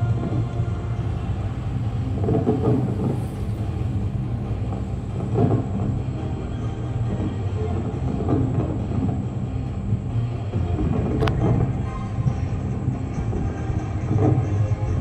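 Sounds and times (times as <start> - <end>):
fireworks rumbling: 0.0 - 15.0.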